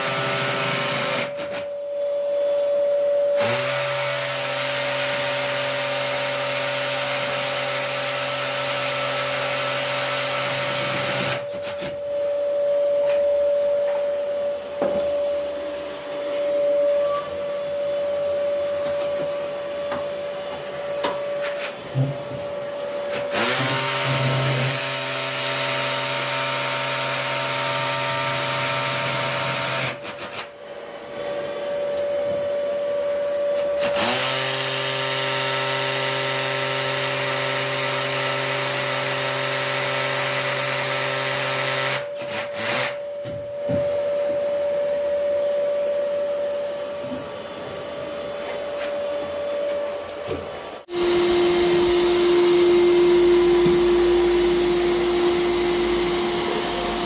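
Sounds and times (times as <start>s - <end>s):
electric power tool winding up: 3.4s - 12.2s, 22.8s - 30.5s, 33.5s - 43.0s, 50.8s - 57.0s
steady hum: 11.4s - 23.2s, 42.9s - 57.0s.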